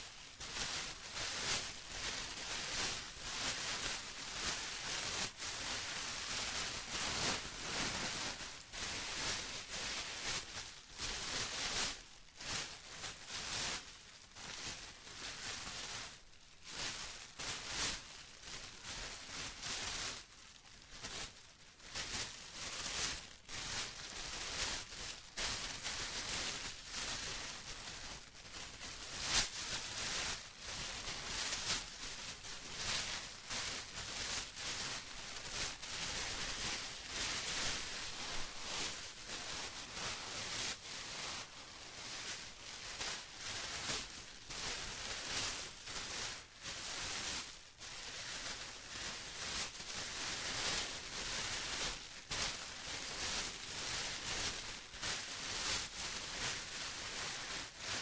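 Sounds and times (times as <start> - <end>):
plastic rustling and crinkling: 0.0 - 58.0.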